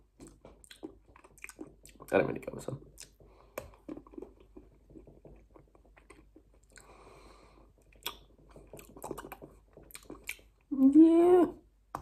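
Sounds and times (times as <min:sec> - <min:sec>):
person chewing chocolate: 0:00.0 - 0:10.7
wet mouth clicks: 0:02.9 - 0:04.6, 0:07.9 - 0:10.5.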